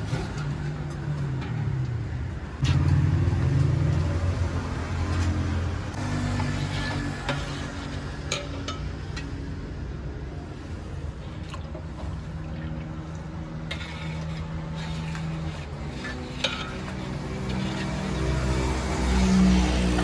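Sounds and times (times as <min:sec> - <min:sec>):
metal utensils clinking on pan: 0:06.6 - 0:09.4.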